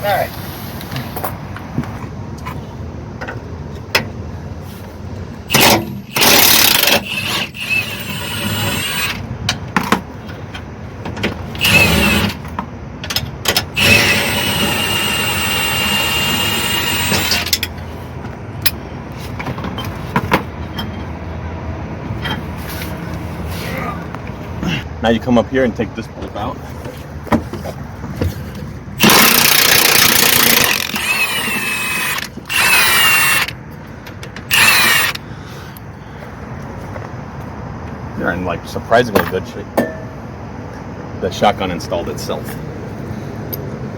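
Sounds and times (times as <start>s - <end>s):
power tool running: 11.6s - 12.4s, 13.8s - 17.6s, 29.0s - 33.6s, 34.5s - 35.2s.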